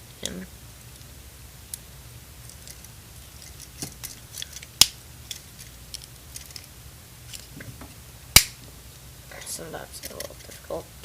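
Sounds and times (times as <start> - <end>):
plastic toy parts clicking: 2.5 - 6.7
sharp plastic snap: 8.4 - 8.6.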